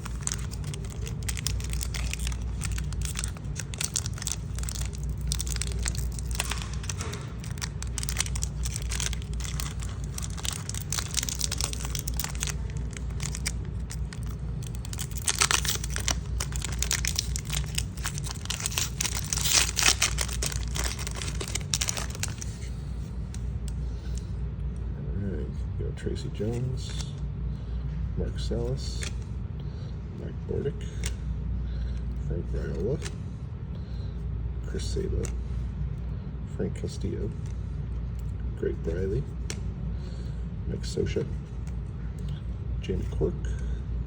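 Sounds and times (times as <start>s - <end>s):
wrapper tearing and crinkling: 0.0s - 22.7s
steady low hum: 0.0s - 44.0s.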